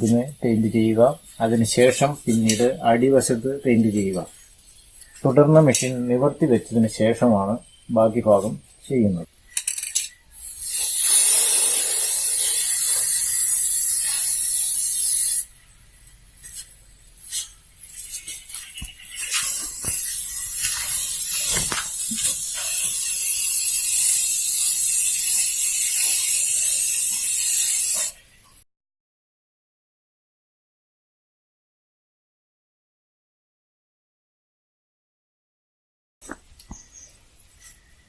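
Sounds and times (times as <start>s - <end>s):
spray-paint can hissing: 9.6s - 15.5s, 16.4s - 28.2s.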